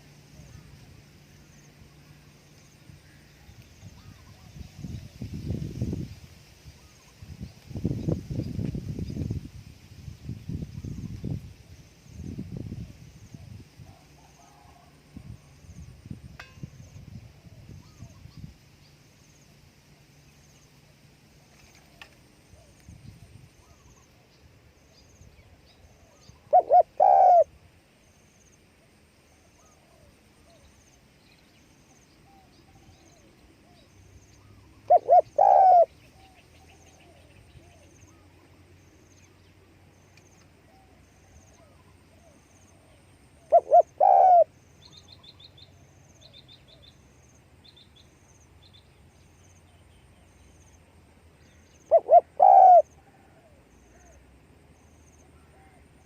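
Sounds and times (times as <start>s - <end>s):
dove cooing: 26.0s - 27.5s, 34.4s - 38.2s, 40.7s - 44.6s, 51.9s - 54.2s.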